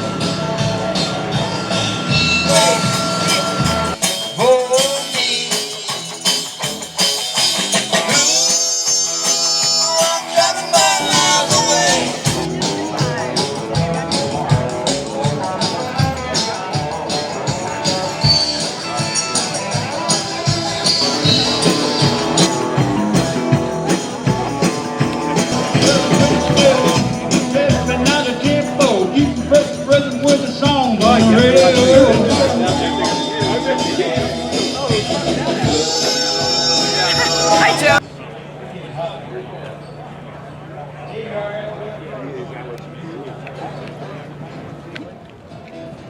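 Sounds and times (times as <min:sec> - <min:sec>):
live band instrumental music: 0:00.0 - 0:38.0
guitar playing bent notes: 0:10.5 - 0:34.6
steady drum beat: 0:10.7 - 0:36.0.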